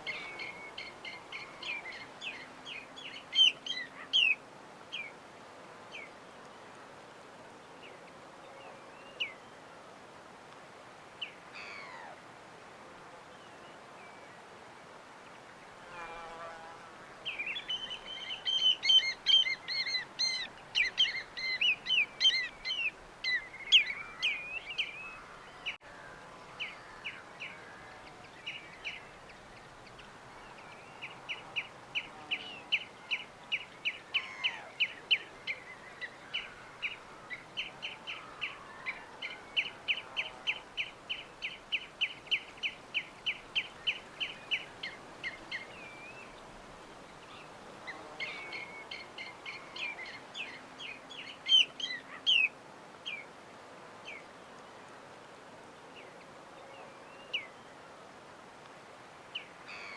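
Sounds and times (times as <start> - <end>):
background hiss: 0.0 - 59.9
small birds chirping: 17.2 - 25.8.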